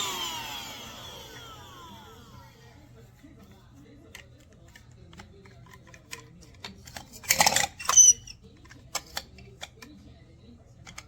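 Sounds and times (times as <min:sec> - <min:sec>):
squeaky scrape: 0:07.5 - 0:08.4.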